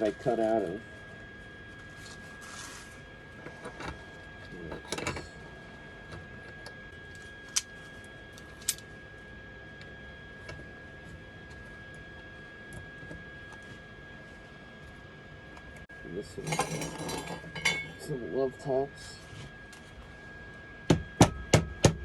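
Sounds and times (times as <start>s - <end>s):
metal parts scraping and knocking: 4.7s - 5.3s, 16.4s - 18.0s.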